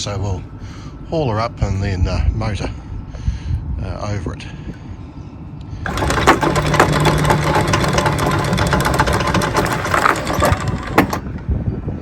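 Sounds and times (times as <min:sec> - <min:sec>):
motor hum: 0:05.6 - 0:11.8
anchor chain clattering: 0:05.8 - 0:11.4.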